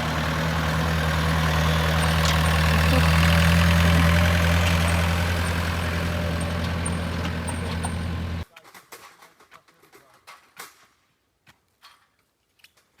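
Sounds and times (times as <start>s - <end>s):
engine idling: 0.0s - 8.4s.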